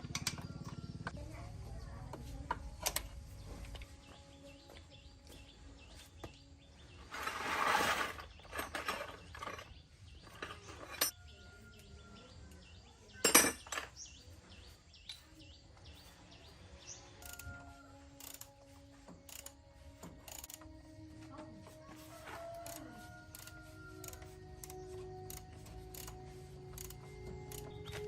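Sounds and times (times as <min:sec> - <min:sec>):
metal tools clinking: 0:07.1 - 0:11.2, 0:13.2 - 0:14.0.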